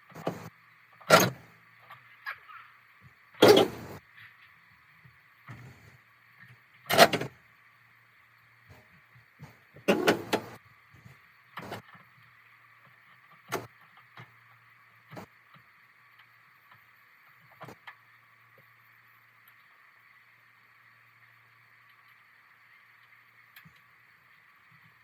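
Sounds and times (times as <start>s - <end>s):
steady hum: 0.0s - 25.0s
knocks and clunks: 0.1s - 0.5s, 3.4s - 4.0s, 9.8s - 10.6s.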